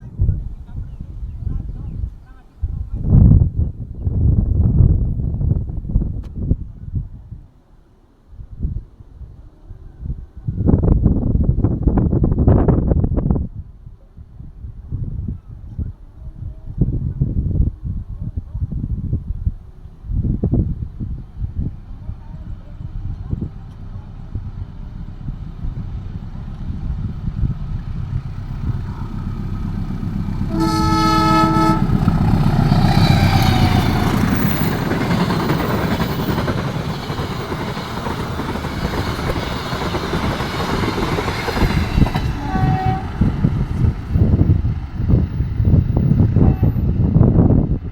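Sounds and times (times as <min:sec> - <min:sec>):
train passing: 0:19.0 - 0:47.9
train horn blast: 0:28.4 - 0:34.9, 0:41.7 - 0:44.5.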